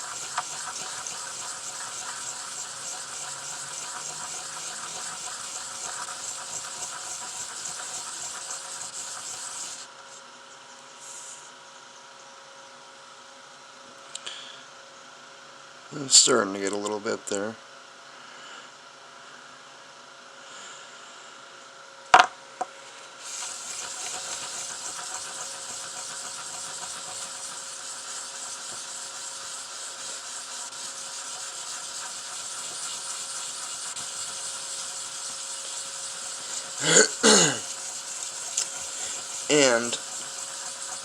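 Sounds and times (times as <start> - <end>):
sandpaper rubbing on metal: 0.0 - 9.9, 23.2 - 41.0.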